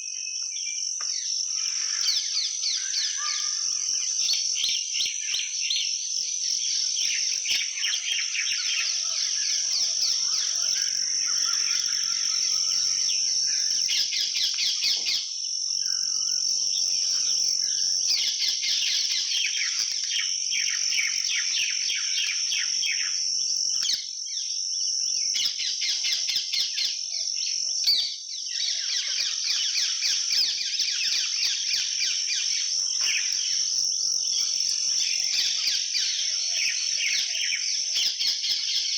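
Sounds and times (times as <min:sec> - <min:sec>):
high-pitched insect drone: 0:00.0 - 0:38.9
rapid insect chirping: 0:00.0 - 0:38.9.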